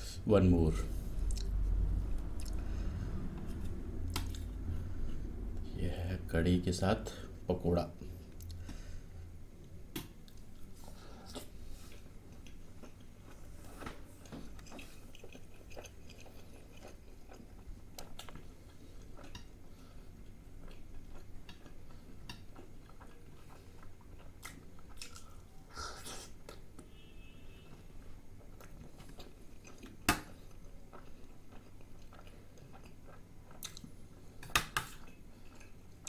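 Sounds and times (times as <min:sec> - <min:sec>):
close chewing of wet food: 0:11.3 - 0:25.6, 0:28.4 - 0:36.0.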